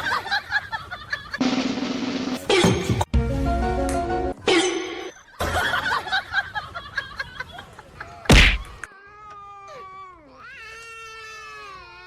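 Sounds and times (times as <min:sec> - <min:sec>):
sharp thump: 0:08.3 - 0:08.7.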